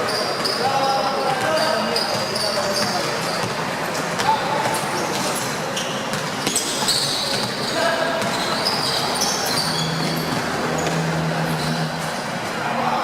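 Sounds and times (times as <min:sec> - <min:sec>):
sneakers squeaking: 0:00.0 - 0:12.8
voices of players and spectators: 0:00.0 - 0:13.0
basketball bouncing: 0:06.1 - 0:11.8.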